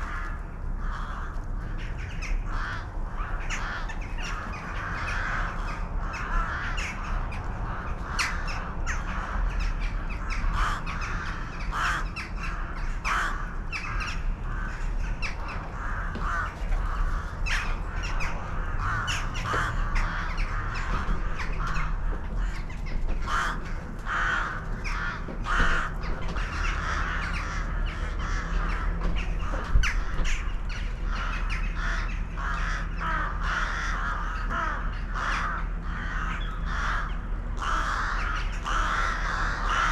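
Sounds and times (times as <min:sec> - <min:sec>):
crows cawing: 0:00.0 - 0:39.9
steady low rumble: 0:00.0 - 0:39.9.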